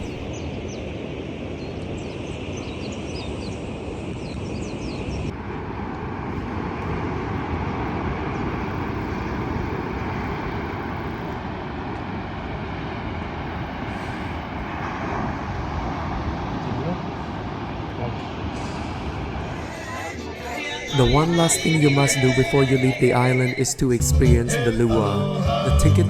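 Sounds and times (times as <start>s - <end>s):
outdoor rushing noise: 5.3s - 21.0s.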